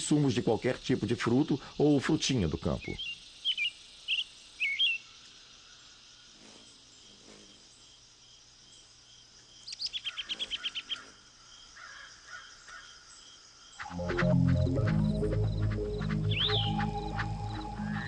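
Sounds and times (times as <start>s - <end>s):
harsh rattling bird calls: 0.0s - 18.0s
insect chirping: 0.0s - 18.0s
bird chirps: 2.6s - 5.2s, 9.6s - 11.1s, 13.1s - 18.0s.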